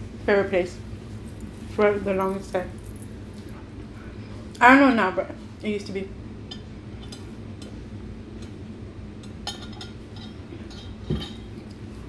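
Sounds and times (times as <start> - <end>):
tableware clicks and clinks: 9.4 - 11.6.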